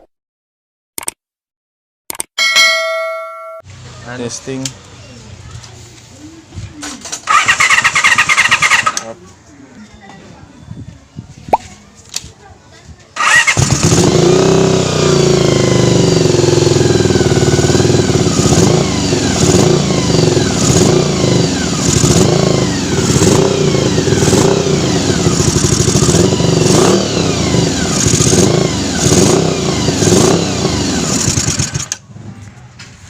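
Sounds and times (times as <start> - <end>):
motorcycle engine revving: 7.0 - 9.2, 13.2 - 32.3.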